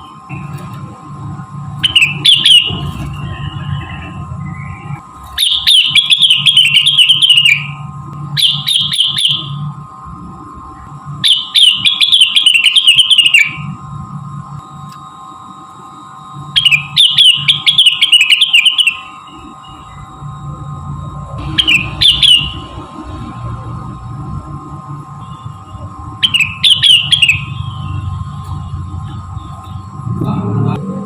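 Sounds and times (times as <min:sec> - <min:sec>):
faint steady hum: 0:00.0 - 0:31.0
bird chattering song: 0:01.8 - 0:02.9, 0:03.6 - 0:07.8, 0:08.4 - 0:09.6, 0:11.2 - 0:13.7, 0:16.6 - 0:20.1, 0:21.5 - 0:22.8, 0:26.2 - 0:28.1.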